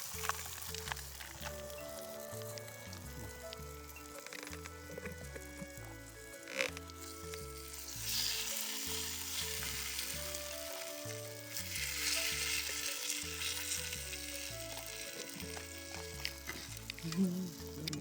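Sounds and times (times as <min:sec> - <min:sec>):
background music with bass line: 0:00.0 - 0:18.0
food sizzling and frying: 0:00.0 - 0:18.0.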